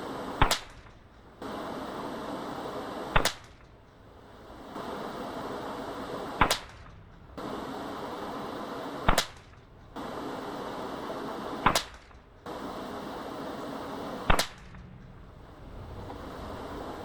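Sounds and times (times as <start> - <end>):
suppressed rifle shots: 0.0 - 17.0.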